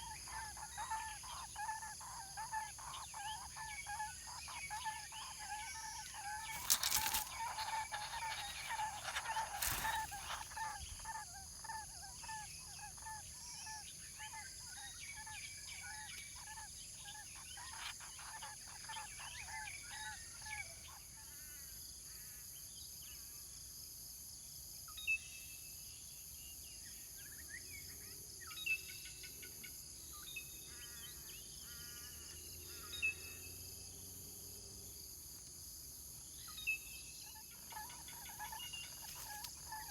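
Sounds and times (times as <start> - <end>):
high insect whine: 4.0 - 11.8.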